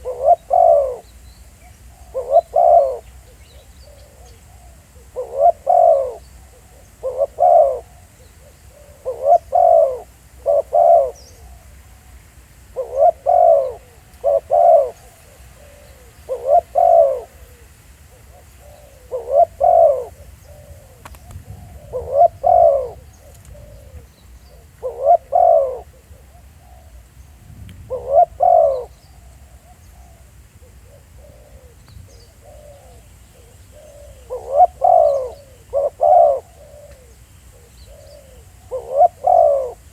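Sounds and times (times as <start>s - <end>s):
dove cooing: 0.0s - 39.9s
faint dove coos: 0.0s - 39.9s.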